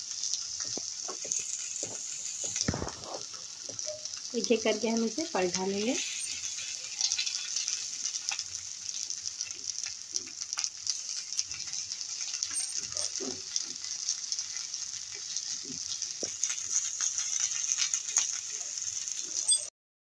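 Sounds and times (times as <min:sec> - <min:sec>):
cutlets sizzling in butter: 0:00.0 - 0:19.7
spatula scraping and tapping pan: 0:00.6 - 0:04.1.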